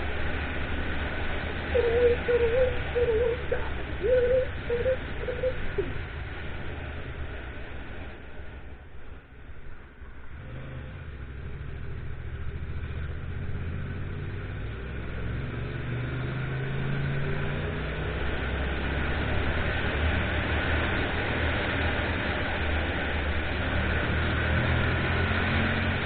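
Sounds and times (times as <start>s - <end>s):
wind and road rush: 0.0s - 26.0s
motorcycle engine accelerating: 10.2s - 26.0s.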